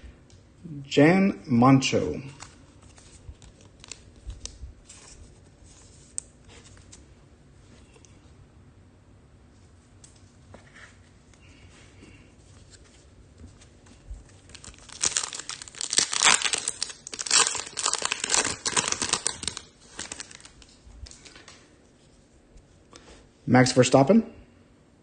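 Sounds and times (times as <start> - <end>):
foil wrapper tearing and crinkling: 2.9 - 4.6, 14.4 - 21.5.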